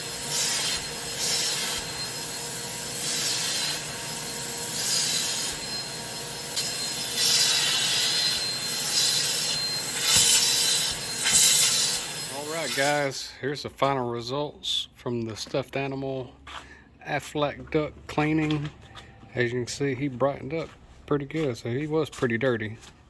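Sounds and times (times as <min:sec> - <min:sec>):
harsh scrubbing strokes: 0:00.0 - 0:13.1.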